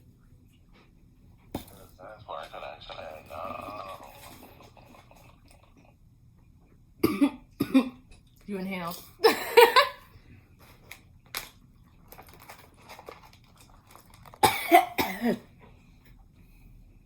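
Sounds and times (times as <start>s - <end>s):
person coughing: 7.0s - 8.0s, 9.2s - 10.0s, 14.4s - 15.5s.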